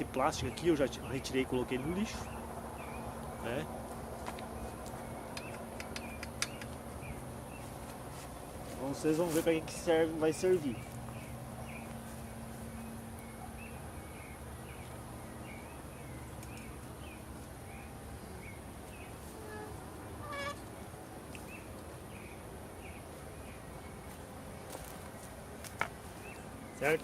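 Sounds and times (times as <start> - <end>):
bird chirping: 0.0 - 3.7, 4.4 - 7.8, 9.7 - 24.2
insect buzz: 18.2 - 20.8.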